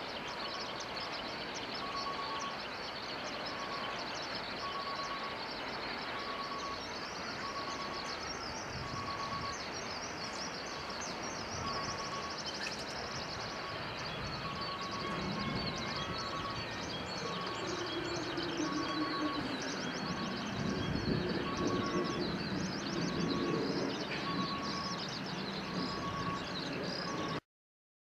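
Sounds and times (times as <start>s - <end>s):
freight train rumbling on rails: 0.3s - 27.4s
short electronic beeps: 8.8s - 9.7s, 13.7s - 25.0s.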